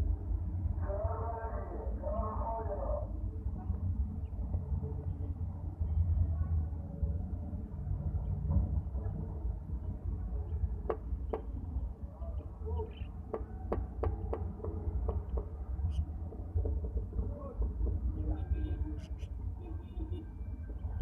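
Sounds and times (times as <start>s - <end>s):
small birds chirping: 12.2s - 13.2s.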